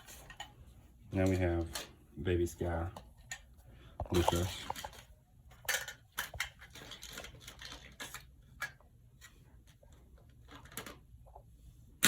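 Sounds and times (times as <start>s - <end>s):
plastic toy dishes clacking: 4.1s - 8.8s.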